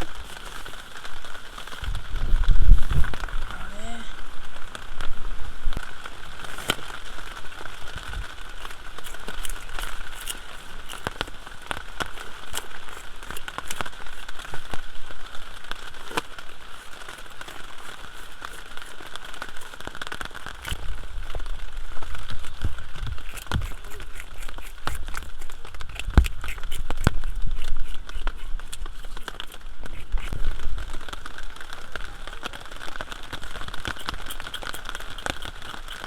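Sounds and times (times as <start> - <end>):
bottle cap scraping fish scales: 8.6 - 11.4, 23.2 - 30.4, 33.9 - 36.0.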